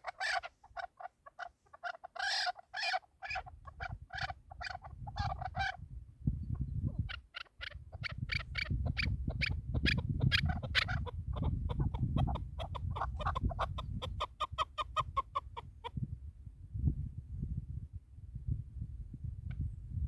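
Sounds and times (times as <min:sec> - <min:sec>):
partridge clucking call: 0:00.0 - 0:05.8, 0:07.0 - 0:15.7.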